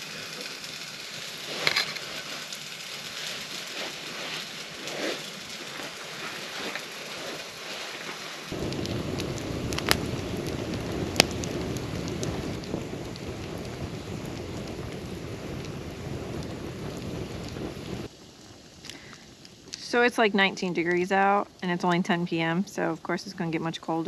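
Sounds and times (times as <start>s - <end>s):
fire pops: 0.0s - 20.9s
campfire crackling: 0.0s - 24.0s
deep rumbling: 8.5s - 21.8s.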